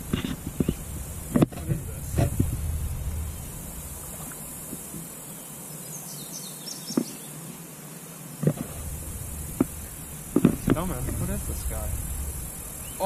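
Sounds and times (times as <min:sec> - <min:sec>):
bird chirps: 0:00.0 - 0:01.3, 0:08.6 - 0:13.0
high insect buzz: 0:00.0 - 0:13.0.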